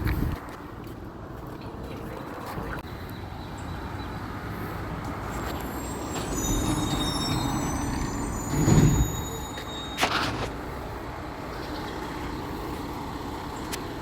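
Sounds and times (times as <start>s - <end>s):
recycling truck engine rumble: 0.0s - 14.0s
thin high squeal: 5.4s - 10.5s.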